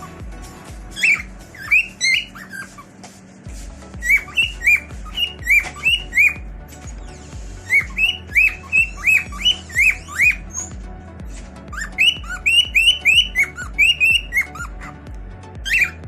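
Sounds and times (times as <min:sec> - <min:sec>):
cockatiel shrill calls: 0:00.9 - 0:02.9, 0:04.0 - 0:10.8, 0:11.7 - 0:15.0, 0:15.6 - 0:16.0.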